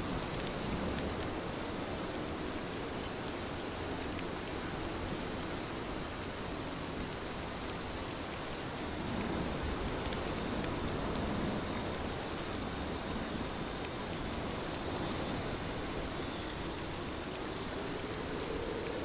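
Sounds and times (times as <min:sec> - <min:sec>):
heavy rain hiss: 0:00.0 - 0:19.0
rain drop ticks: 0:16.0 - 0:19.0.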